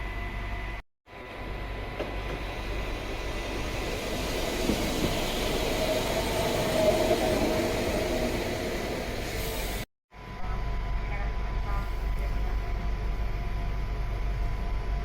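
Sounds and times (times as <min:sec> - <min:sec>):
electric train running on rails: 0:00.0 - 0:15.0.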